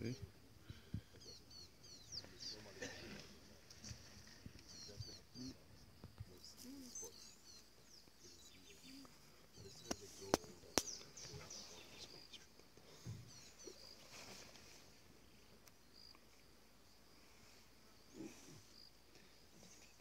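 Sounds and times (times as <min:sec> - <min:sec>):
small birds chirping: 0:00.0 - 0:20.0
sharp clicks: 0:09.8 - 0:11.4.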